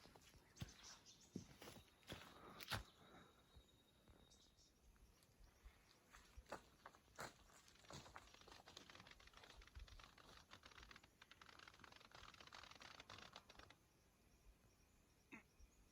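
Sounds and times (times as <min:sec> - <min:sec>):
faint rustling and crackling: 0:06.4 - 0:13.8.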